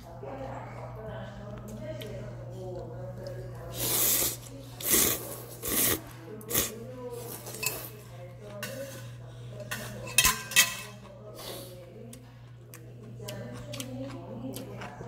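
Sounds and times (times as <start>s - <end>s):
utensils scraping a bowl: 4.0s - 11.1s.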